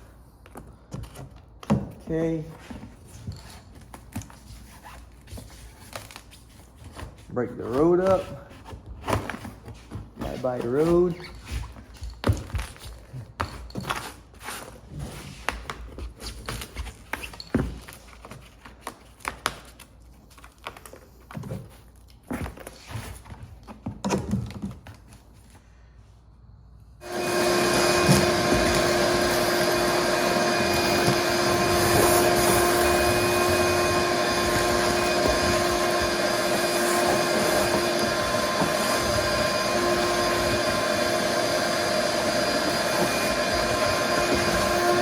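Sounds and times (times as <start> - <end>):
electric motor whining: 27.0 - 45.0.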